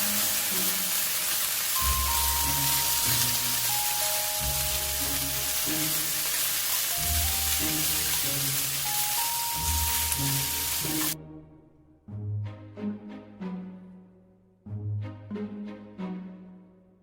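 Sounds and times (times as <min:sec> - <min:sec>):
food sizzling in a frying pan: 0:00.0 - 0:11.2
light background music: 0:00.0 - 0:17.0.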